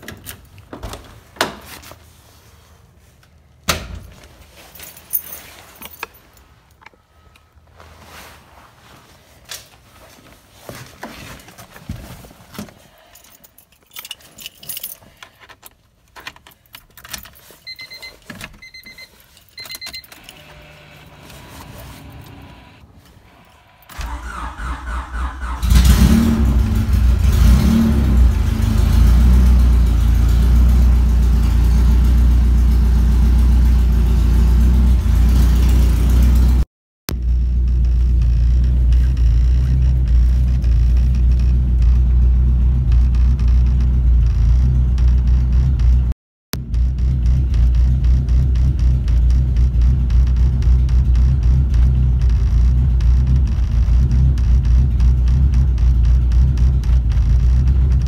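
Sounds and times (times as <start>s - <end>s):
keys jangling: 4.7s - 6.4s, 13.0s - 17.7s
car starter cranking: 23.8s - 27.4s.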